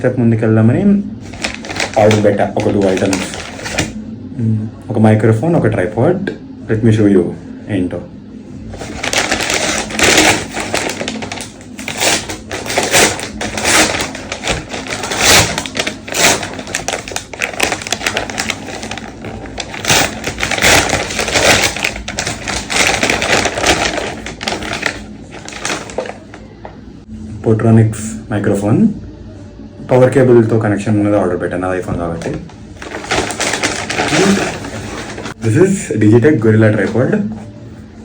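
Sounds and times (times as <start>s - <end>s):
packaging crackling and rustling: 1.2s - 4.0s, 8.7s - 26.5s, 32.0s - 35.5s.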